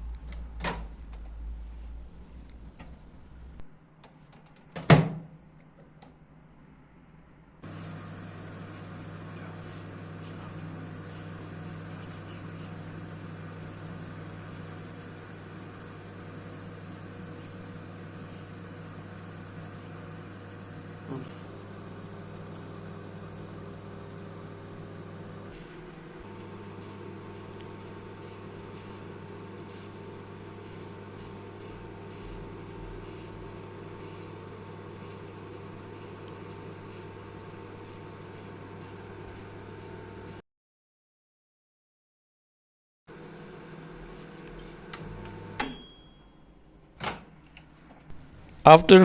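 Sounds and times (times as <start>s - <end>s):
microwave door clunk: 0.0s - 3.6s
microwave humming: 0.0s - 3.6s, 7.7s - 25.5s, 26.3s - 32.7s, 48.1s - 49.0s.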